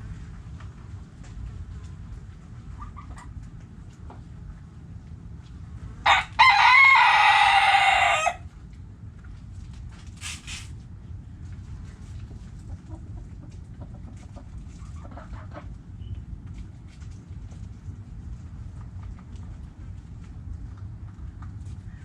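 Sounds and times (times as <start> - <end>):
faint hen clucks: 2.6 - 4.2, 12.2 - 16.2
rooster crowing: 6.0 - 8.5.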